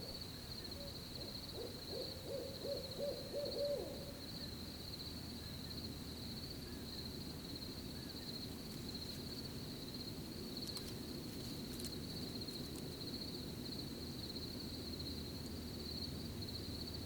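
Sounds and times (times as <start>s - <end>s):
crickets trilling: 0.0s - 17.0s
low background hiss: 0.0s - 17.0s
faint ticks: 10.6s - 12.9s.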